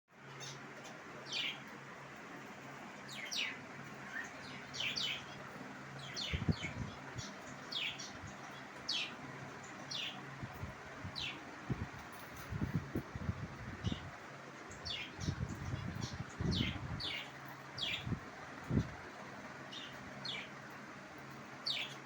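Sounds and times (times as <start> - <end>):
lovebirds chirping: 0.2 - 22.0.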